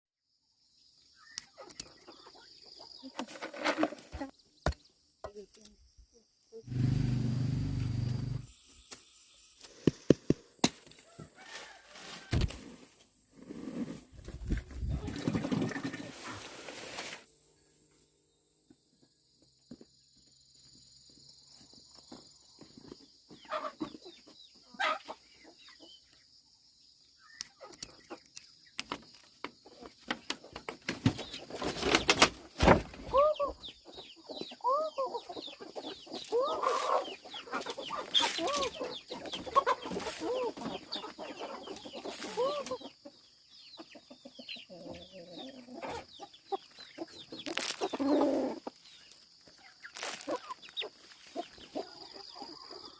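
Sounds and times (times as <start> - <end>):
chickens clucking: 1.5 - 3.6, 14.3 - 16.6, 23.3 - 26.3, 33.0 - 52.9.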